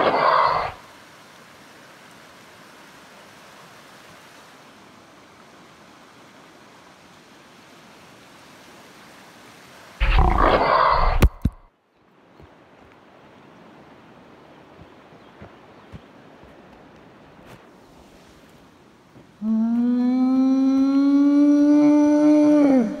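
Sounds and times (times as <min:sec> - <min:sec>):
rushing creek water: 0:00.0 - 0:19.9
loud roar: 0:10.0 - 0:11.3
sharp clicks: 0:10.0 - 0:11.7.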